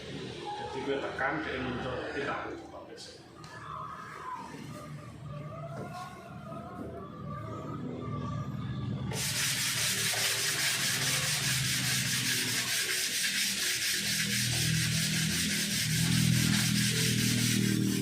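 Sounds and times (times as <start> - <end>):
sanding body filler: 9.1 - 18.0.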